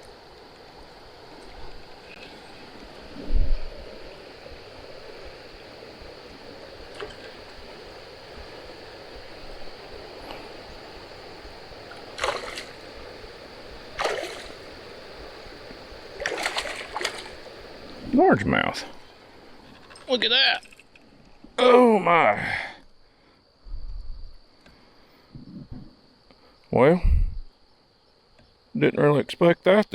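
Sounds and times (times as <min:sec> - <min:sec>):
river water rushing: 0:00.0 - 0:18.1
fish splashing at surface: 0:11.9 - 0:12.8, 0:14.0 - 0:14.7, 0:16.2 - 0:17.5.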